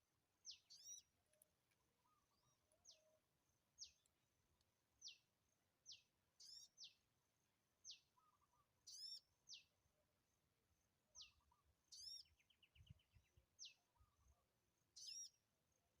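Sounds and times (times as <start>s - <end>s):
bird trill: 0.5s - 1.1s, 7.9s - 9.2s, 11.2s - 12.4s, 15.0s - 15.3s.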